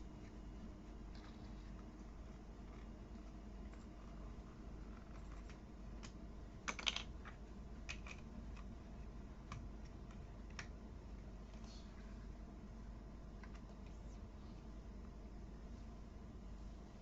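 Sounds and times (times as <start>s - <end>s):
plastic pieces clicking: 6.0s - 8.7s.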